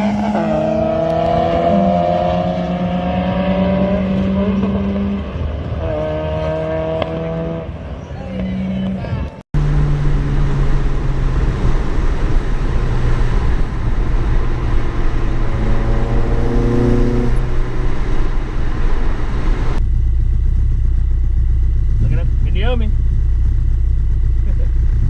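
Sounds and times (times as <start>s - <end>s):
wind and road noise: 0.0s - 25.0s
car engine pulling: 9.6s - 25.0s.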